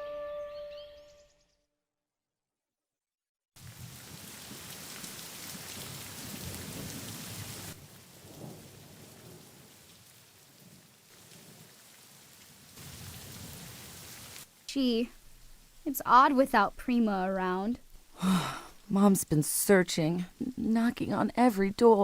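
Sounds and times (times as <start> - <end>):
heavy rain: 3.6 - 19.0
thunder rumbling: 5.5 - 9.8.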